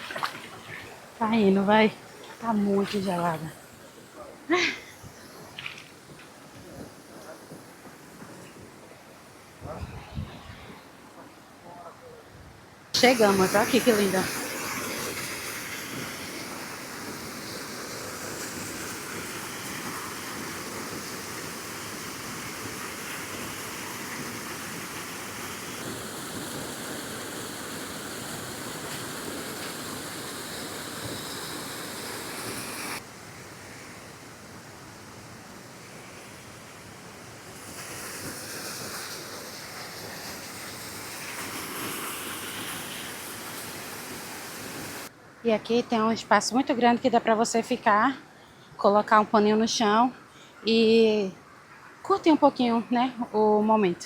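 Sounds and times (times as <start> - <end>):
waterfall pouring into pool: 13.0 - 33.0, 37.4 - 45.1.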